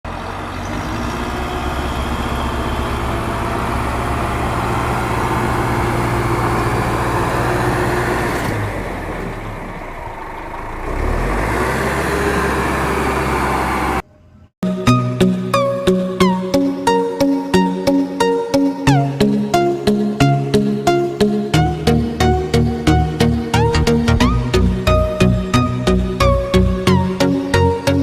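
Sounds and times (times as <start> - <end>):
engine idling: 0.1 - 14.5.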